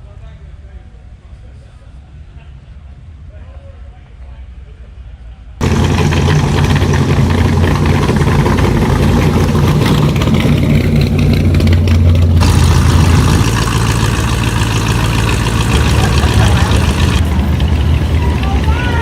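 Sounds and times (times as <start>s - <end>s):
car engine idling: 5.6s - 19.0s.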